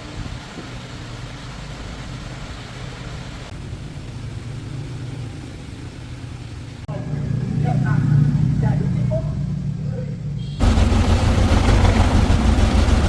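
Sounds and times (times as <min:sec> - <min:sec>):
hiss: 0:00.0 - 0:06.9
engine running with low hum: 0:00.0 - 0:13.0.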